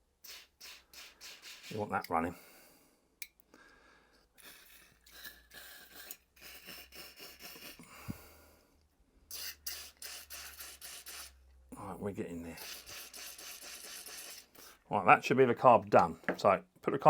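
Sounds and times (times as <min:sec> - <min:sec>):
aerosol spray hissing: 0:00.2 - 0:02.1, 0:05.2 - 0:07.8, 0:09.3 - 0:11.4, 0:12.6 - 0:14.8.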